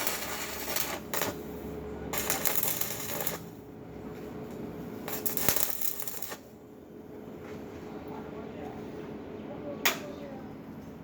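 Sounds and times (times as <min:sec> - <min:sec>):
welding arc crackling: 0:00.0 - 0:03.7, 0:05.0 - 0:06.5.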